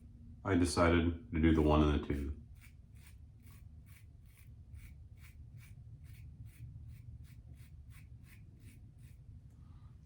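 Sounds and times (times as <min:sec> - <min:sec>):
razor scraping stubble: 0:01.6 - 0:09.3.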